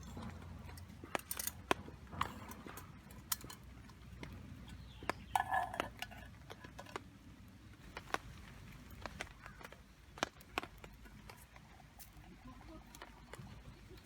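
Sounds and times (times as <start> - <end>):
cookware knocks and clicks: 5.0 - 7.0.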